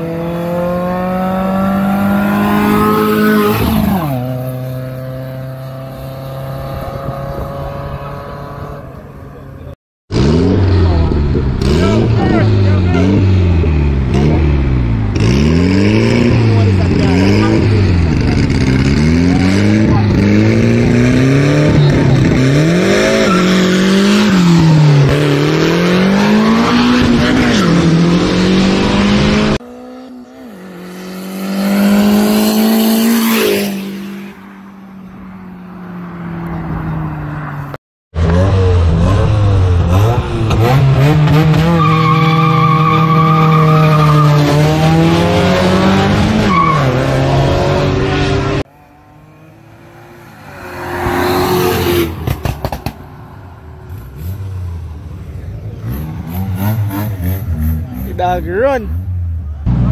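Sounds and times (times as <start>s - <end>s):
car engine revving hard: 10.1s - 34.0s, 38.2s - 52.5s, 55.6s - 59.1s
tire squeal: 23.0s - 24.4s, 41.4s - 44.7s, 46.4s - 47.4s.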